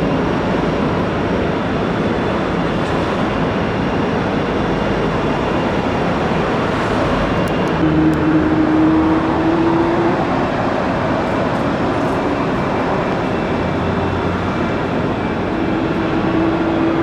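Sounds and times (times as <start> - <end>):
jet engines roaring: 0.0 - 17.0
steady hum: 5.5 - 17.0.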